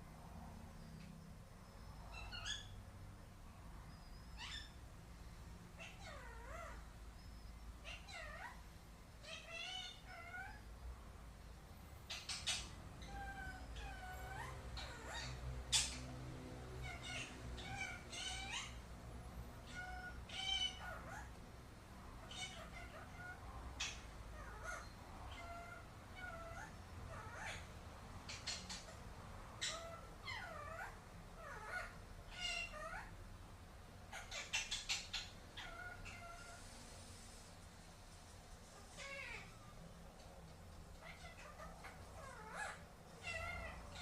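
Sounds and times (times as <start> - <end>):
parakeet calls: 1.8 - 3.1, 3.9 - 4.9, 5.7 - 10.7, 12.0 - 18.9, 19.5 - 21.4, 22.1 - 33.2, 34.1 - 36.7, 38.8 - 39.8, 40.9 - 44.0.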